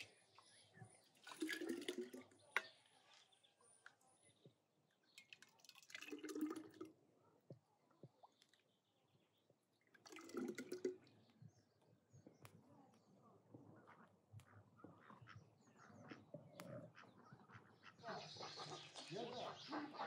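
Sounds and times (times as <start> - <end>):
liquid splashing: 1.2 - 2.3, 5.2 - 6.9, 9.9 - 11.1.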